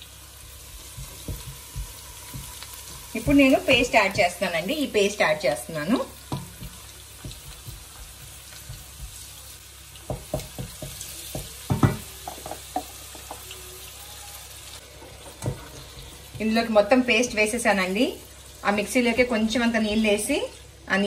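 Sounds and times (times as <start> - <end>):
onions sizzling in oil: 0.0 - 21.0
wooden spoon knocking and scraping: 10.1 - 13.4.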